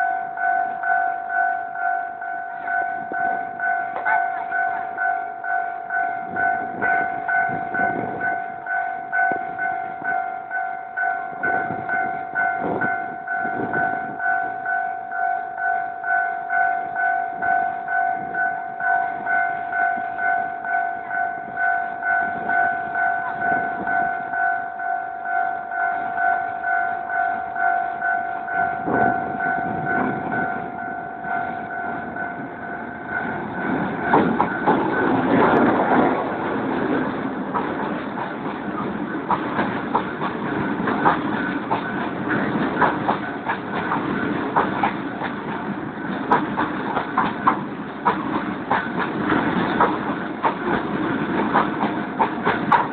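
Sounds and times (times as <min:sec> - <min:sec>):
level crossing bell ringing: 0:00.0 - 0:33.6
train rumble with sharp knocks: 0:00.0 - 0:52.9.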